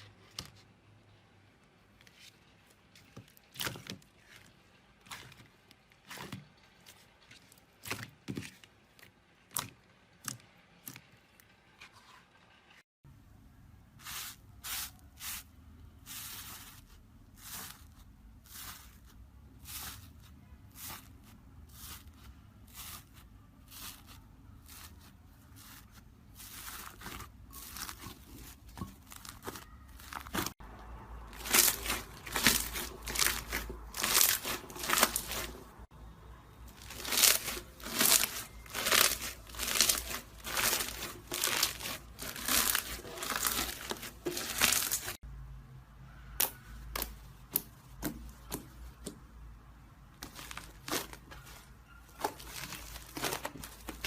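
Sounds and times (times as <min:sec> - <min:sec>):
slime squishing and crackling: 0:02.7 - 0:08.7, 0:14.1 - 0:35.9, 0:36.7 - 0:45.2, 0:50.2 - 0:54.0.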